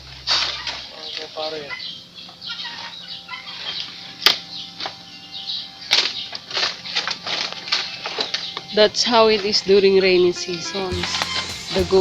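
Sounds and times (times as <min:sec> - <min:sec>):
leaves rustling and tearing: 0:05.8 - 0:09.6.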